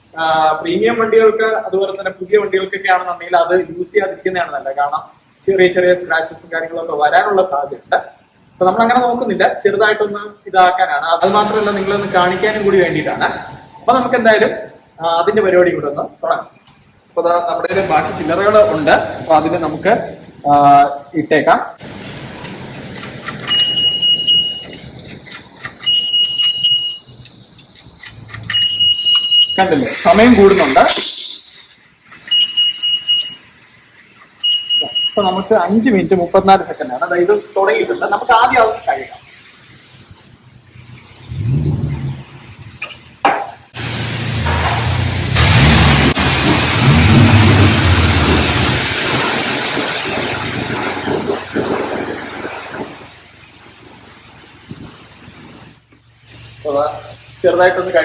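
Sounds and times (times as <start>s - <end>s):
high-pressure water spray hissing: 11.2s - 13.3s, 29.7s - 58.0s.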